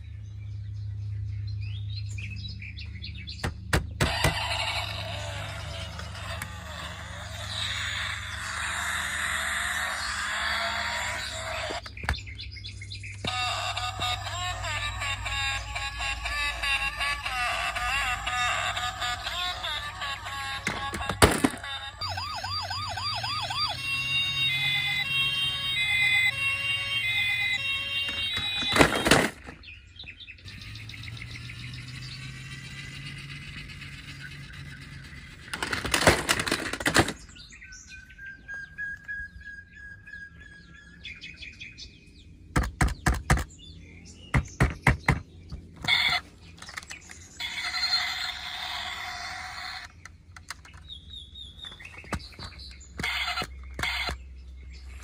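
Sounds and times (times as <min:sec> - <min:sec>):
warbling toy siren: 0:04.0 - 0:11.9, 0:13.2 - 0:29.6, 0:30.6 - 0:37.1, 0:45.8 - 0:49.9, 0:53.0 - 0:54.2
hard plastic clattering: 0:20.6 - 0:21.8, 0:28.0 - 0:29.6, 0:35.5 - 0:37.3.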